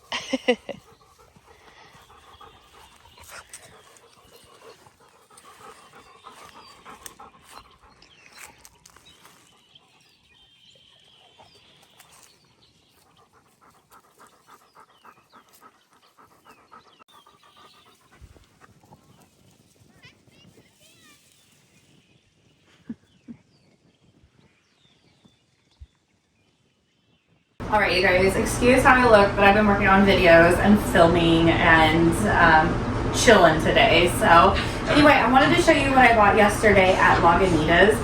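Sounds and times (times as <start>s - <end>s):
dog panting: 0.0s - 19.7s, 28.3s - 38.0s.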